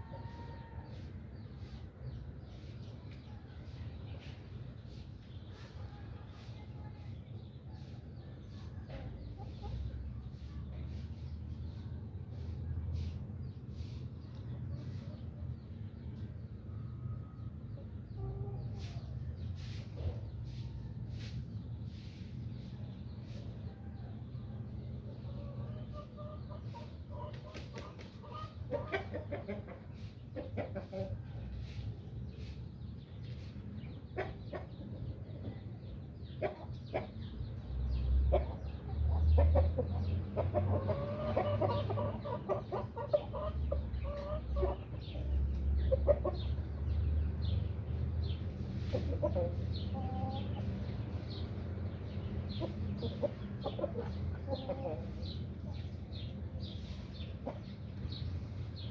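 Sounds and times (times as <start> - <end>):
chickens clucking: 0.0 - 58.9.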